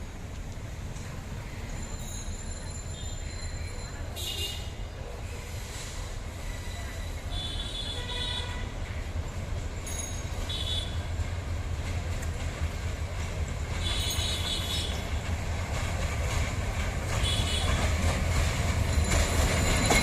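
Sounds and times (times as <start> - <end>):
train rumbling on rails: 0.0 - 20.0
train wheels squealing: 1.4 - 4.6, 5.3 - 8.0, 9.8 - 10.9, 13.8 - 15.2, 17.2 - 20.0.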